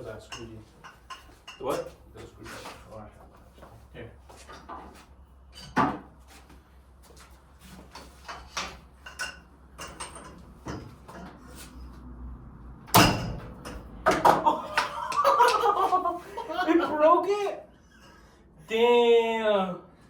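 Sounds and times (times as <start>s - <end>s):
hand tools clanking on metal: 0.2s - 2.0s, 8.2s - 11.4s, 12.9s - 15.6s.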